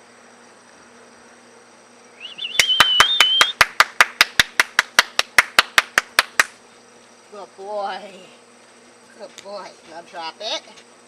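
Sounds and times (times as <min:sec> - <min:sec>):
wavering whistle: 0:02.2 - 0:03.7
rapid hand clapping: 0:02.6 - 0:06.6.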